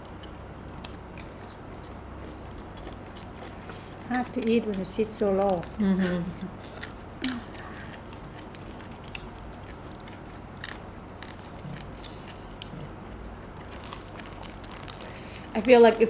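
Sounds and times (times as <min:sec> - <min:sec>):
people eating and chewing: 0:00.0 - 0:16.0.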